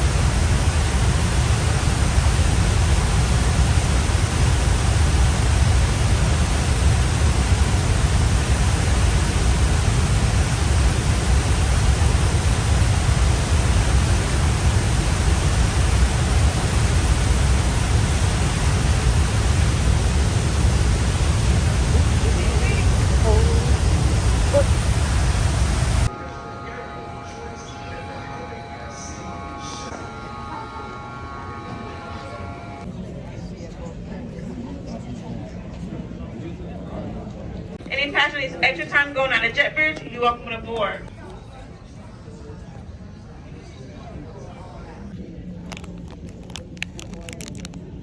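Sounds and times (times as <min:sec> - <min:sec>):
waterfall rushing: 0:00.0 - 0:26.1.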